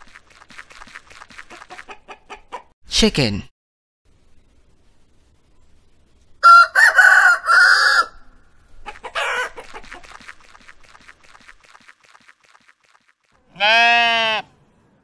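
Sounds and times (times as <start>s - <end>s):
quick clucks: 0.4s - 2.7s, 8.8s - 13.1s
rooster squawk: 6.4s - 8.2s, 8.8s - 9.9s
rooster crowing: 6.4s - 8.3s.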